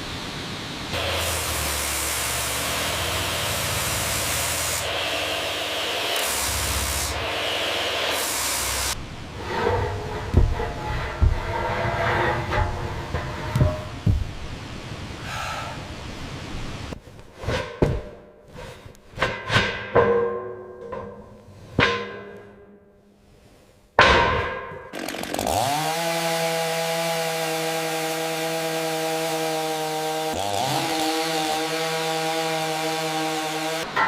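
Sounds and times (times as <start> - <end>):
motor-driven tool spinning: 1.0 - 9.0.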